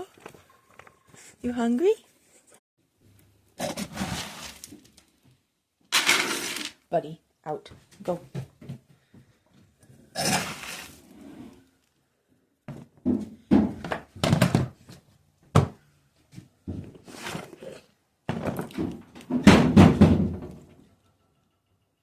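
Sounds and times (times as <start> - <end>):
objects thunking and scraping: 3.6 - 6.8, 12.7 - 20.9
objects clattering: 5.9 - 6.8, 16.7 - 20.8.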